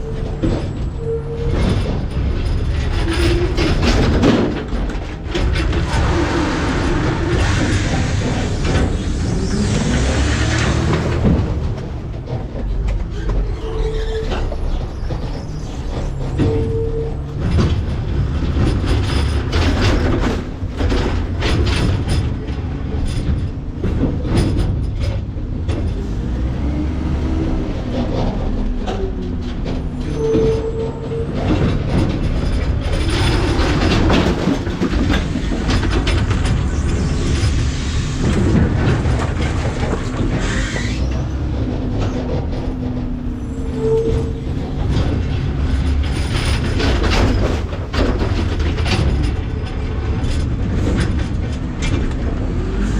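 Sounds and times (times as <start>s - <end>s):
brief squeal: 0.0s - 1.9s, 13.1s - 17.4s, 29.9s - 31.4s, 40.3s - 41.5s, 43.3s - 44.8s
diesel engine running: 0.0s - 52.9s.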